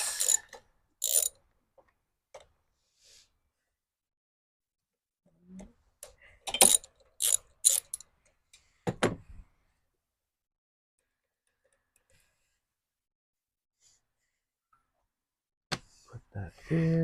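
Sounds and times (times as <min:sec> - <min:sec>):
hand tools clicking and clanking: 0:00.0 - 0:01.4, 0:06.4 - 0:08.1.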